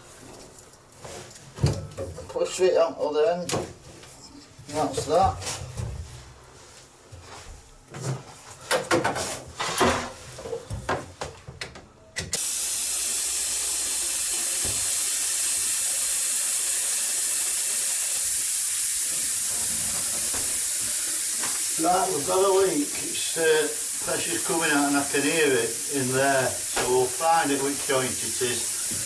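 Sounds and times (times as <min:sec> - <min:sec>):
compressed air hissing: 0:12.4 - 0:29.0.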